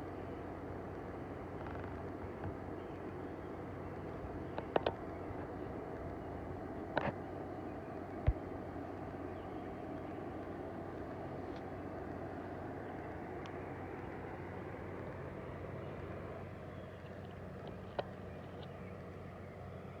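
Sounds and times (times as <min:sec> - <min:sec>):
low outdoor rumble: 0:00.0 - 0:20.0
faint high ticks: 0:12.9 - 0:13.6.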